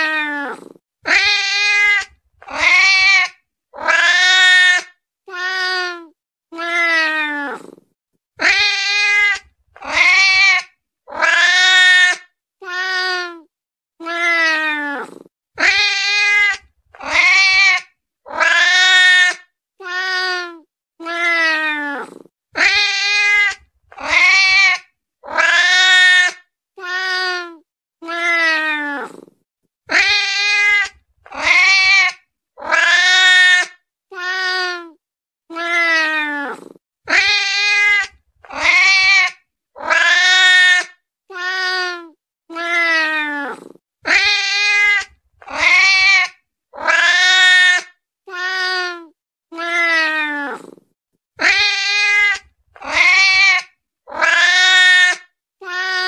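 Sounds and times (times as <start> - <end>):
cat meowing: 0.0 - 7.7, 29.9 - 50.7, 51.4 - 56.0.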